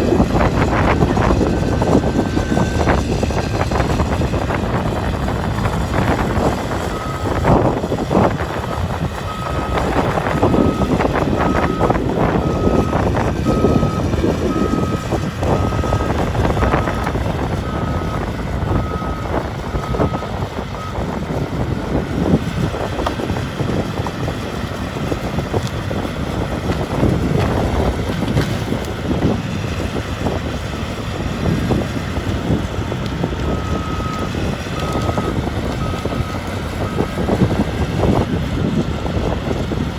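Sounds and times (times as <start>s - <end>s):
excavator diesel engine: 0.0s - 39.9s
reversing alarm beeps: 0.3s - 4.0s, 6.2s - 8.0s, 8.6s - 21.0s, 33.4s - 37.3s.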